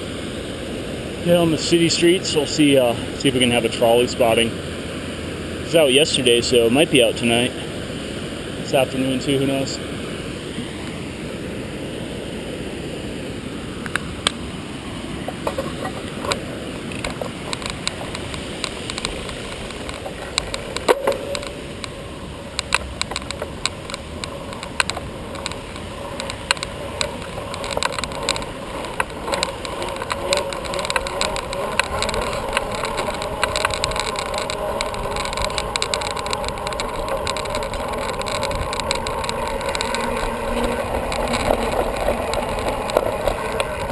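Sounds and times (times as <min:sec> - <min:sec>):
wind and tyres rushing: 0:00.0 - 0:43.9
bicycle clicks and rattles: 0:15.2 - 0:43.9.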